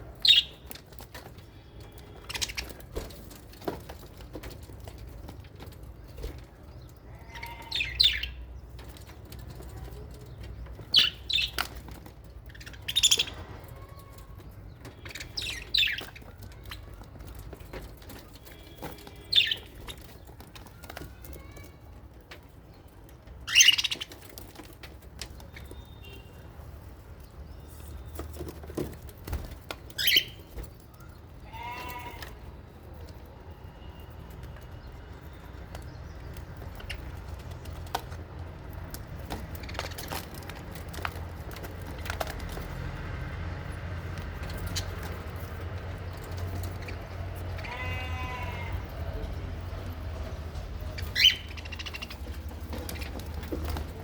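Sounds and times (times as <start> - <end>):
wavering bleat-like calls: 31.4 - 32.4, 47.5 - 49.0.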